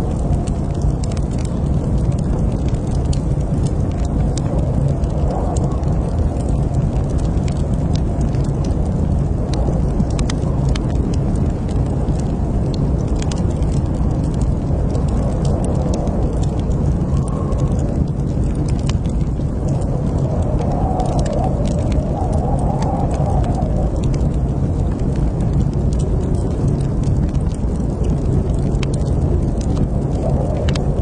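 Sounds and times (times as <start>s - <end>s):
low rumble of flames: 0.0s - 31.0s
wood fire crackling and popping: 0.0s - 31.0s.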